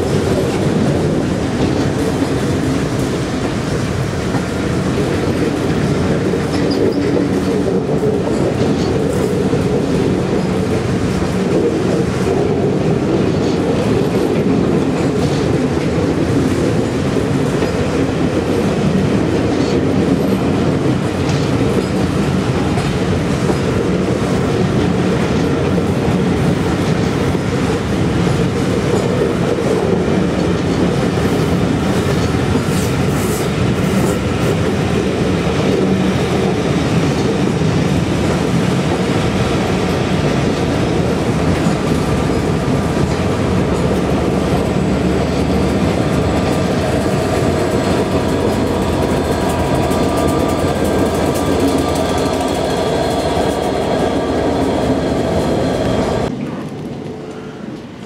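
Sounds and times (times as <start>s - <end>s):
rumble of wheels on rails: 0.0s - 58.0s.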